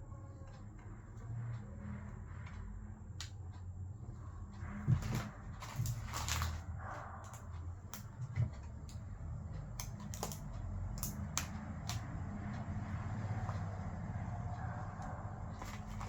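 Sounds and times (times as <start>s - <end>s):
steady low hum: 0.0s - 16.0s
clicks and taps of small parts: 9.7s - 12.1s.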